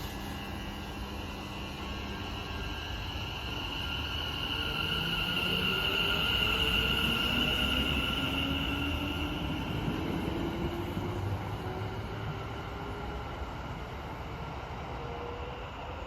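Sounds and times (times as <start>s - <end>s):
train high-pitched squeal: 0.0s - 14.1s, 14.9s - 16.0s.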